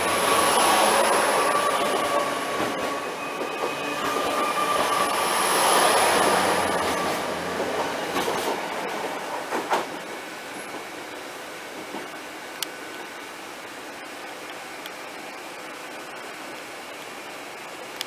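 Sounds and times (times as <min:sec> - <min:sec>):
train engines rumbling: 0:00.0 - 0:13.8.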